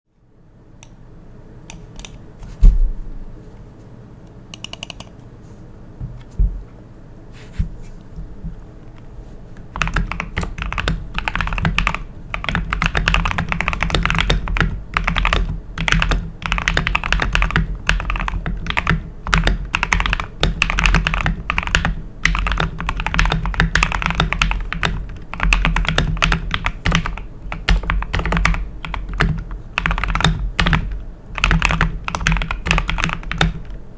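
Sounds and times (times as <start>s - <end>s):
mechanical keyboard typing: 4.6s - 5.1s, 9.8s - 33.8s.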